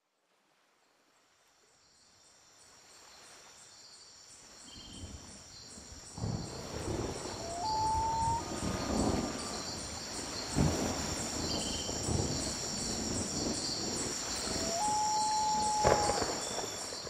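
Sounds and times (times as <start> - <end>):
insects chirping: 1.9 - 17.0
low storm rumble: 6.2 - 17.0.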